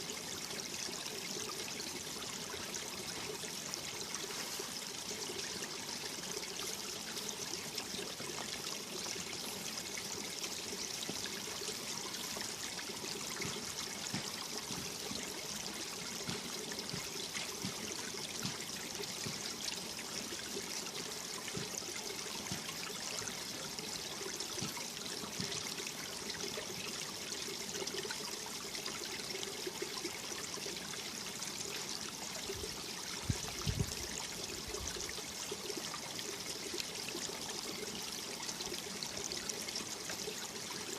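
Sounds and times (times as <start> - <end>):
stream water flowing over rocks: 0.0 - 40.9.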